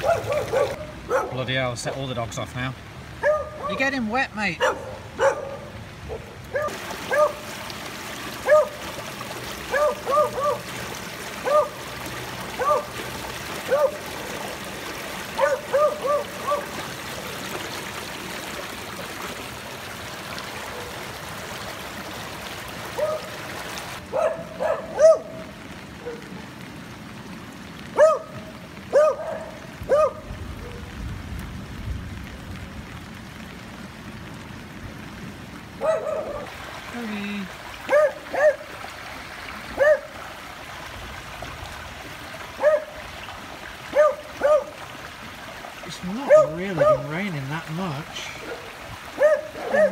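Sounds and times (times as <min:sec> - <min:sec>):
dog barking: 0:00.0 - 0:01.4, 0:03.2 - 0:03.8, 0:04.6 - 0:07.4, 0:08.4 - 0:08.8, 0:09.7 - 0:10.7, 0:11.4 - 0:11.8, 0:12.6 - 0:12.9, 0:13.7 - 0:14.4, 0:15.3 - 0:16.7, 0:23.0 - 0:23.3, 0:24.1 - 0:26.3, 0:28.0 - 0:30.9, 0:35.8 - 0:36.5, 0:37.9 - 0:38.7, 0:39.8 - 0:40.1, 0:42.6 - 0:43.0, 0:43.9 - 0:44.8, 0:46.2 - 0:47.1, 0:48.4 - 0:49.9
water rushing in storm drain: 0:00.0 - 0:49.9.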